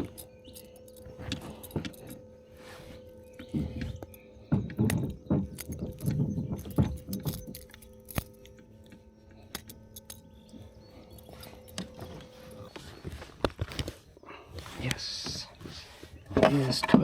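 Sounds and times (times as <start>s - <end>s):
faint steady hum: 0.0s - 17.0s
gear rattling in plastic kayak: 3.4s - 10.4s, 11.0s - 17.0s.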